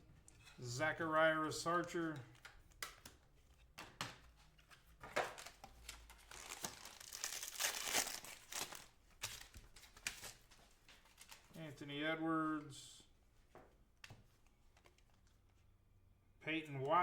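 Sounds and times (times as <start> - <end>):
cards clicking: 2.0 - 3.2
foil wrapper crinkling and tearing: 5.3 - 10.5.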